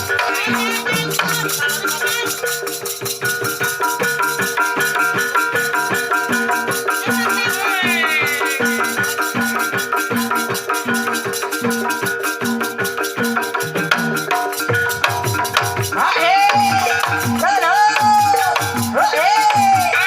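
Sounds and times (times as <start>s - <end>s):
person singing: 0.0s - 2.6s, 6.9s - 9.8s, 16.0s - 20.0s
metallophone tones: 0.0s - 20.0s
steady drum beat: 0.0s - 20.0s.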